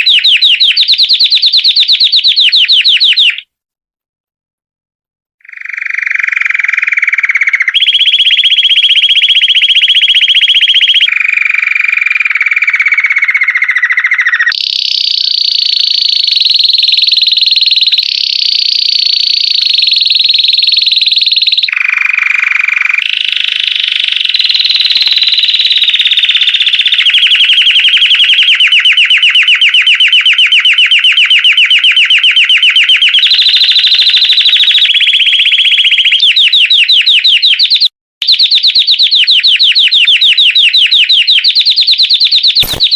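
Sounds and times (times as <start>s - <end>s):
canary singing trilled rolls: 0.0s - 3.4s, 24.2s - 42.9s.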